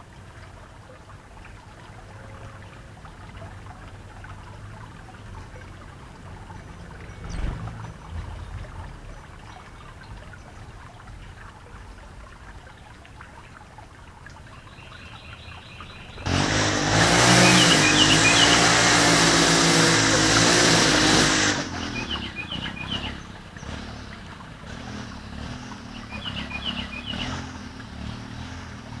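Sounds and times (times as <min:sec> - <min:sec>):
small birds chirping: 0:14.4 - 0:29.0
loud engine noise: 0:16.1 - 0:29.0.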